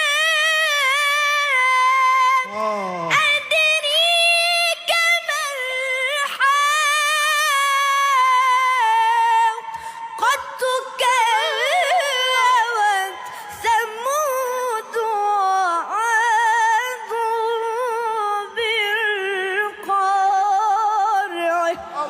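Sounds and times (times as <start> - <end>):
person chanting melodically: 1.9 - 3.5.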